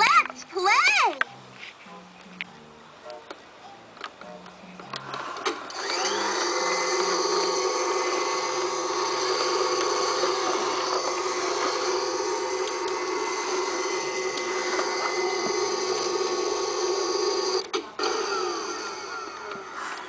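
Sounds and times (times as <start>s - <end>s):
toy vacuum cleaner whirring: 4.9s - 20.0s.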